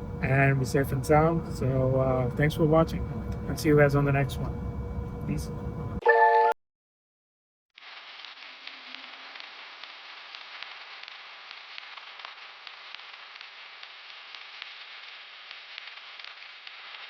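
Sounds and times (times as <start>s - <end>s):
faint crackles: 7.8s - 17.0s
static hiss: 7.8s - 17.0s.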